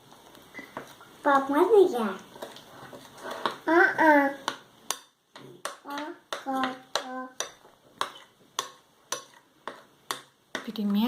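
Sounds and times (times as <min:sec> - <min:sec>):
child vocal sounds: 0:03.6 - 0:04.5, 0:05.8 - 0:07.5.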